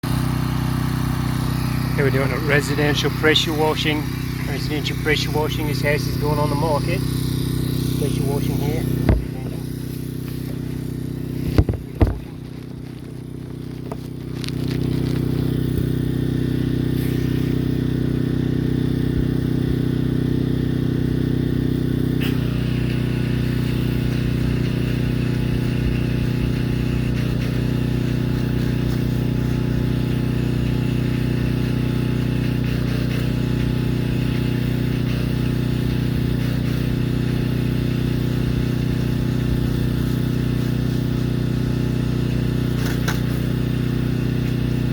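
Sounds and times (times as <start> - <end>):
pressure washer engine running: 0.0 - 44.9
high-pressure water spray hiss: 0.1 - 44.9
sharp knocks: 9.0 - 9.4.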